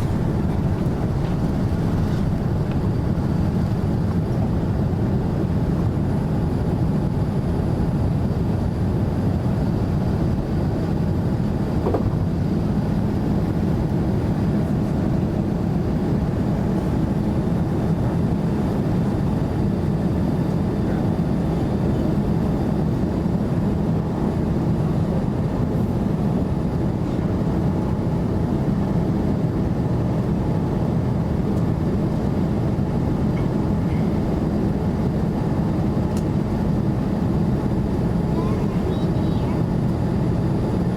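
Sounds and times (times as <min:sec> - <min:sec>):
air rushing past fuselage: 0:00.0 - 0:04.7
low engine rumble: 0:00.0 - 0:06.1, 0:37.6 - 0:40.9.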